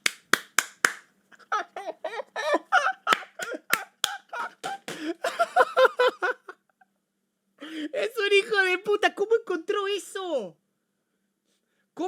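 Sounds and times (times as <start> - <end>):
man laughing hard: 1.4 - 6.6.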